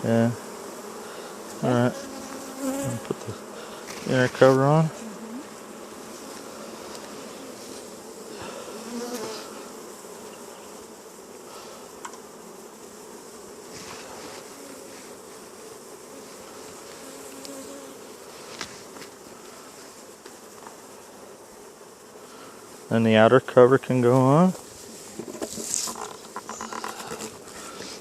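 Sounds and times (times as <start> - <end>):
honeybees buzzing: 0.0 - 28.0
light clicks from hive: 2.3 - 5.1, 6.2 - 7.2, 12.0 - 12.3, 16.7 - 17.7.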